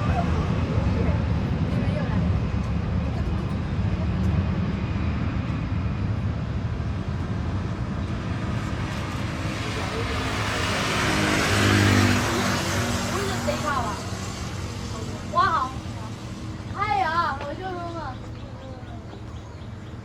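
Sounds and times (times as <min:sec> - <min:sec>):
jet engine roar on takeoff: 0:00.0 - 0:20.0.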